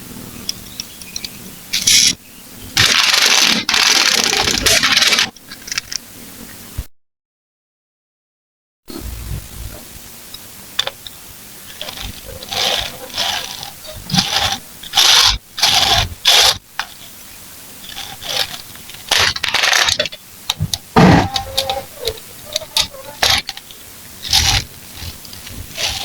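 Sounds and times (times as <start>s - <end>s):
plastic building bricks clicking: 2.8s - 6.0s, 10.8s - 17.2s, 17.8s - 26.0s.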